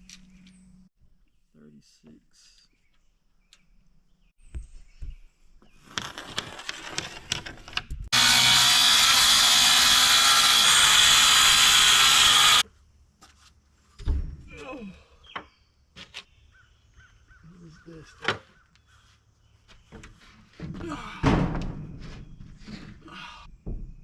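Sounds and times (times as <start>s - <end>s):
power saw cutting plywood: 8.1s - 12.6s.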